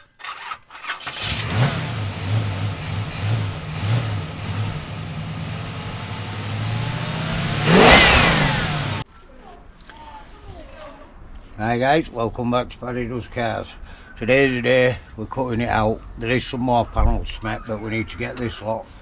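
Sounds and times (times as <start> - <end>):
car engine starting and running: 1.0 - 9.0
car engine revving: 1.1 - 9.0.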